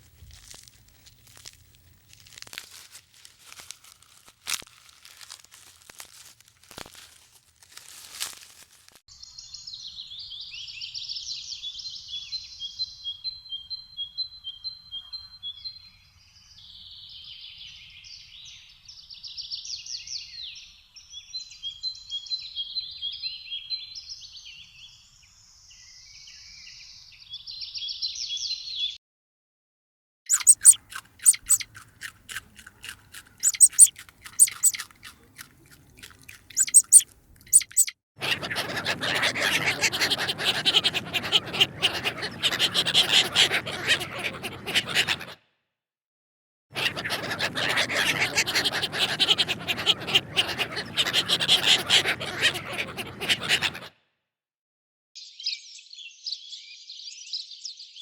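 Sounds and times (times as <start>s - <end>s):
sharp clicks and crunching: 0.0s - 9.0s, 30.3s - 37.9s
small bird singing: 30.3s - 32.1s, 32.8s - 37.9s, 55.2s - 58.0s.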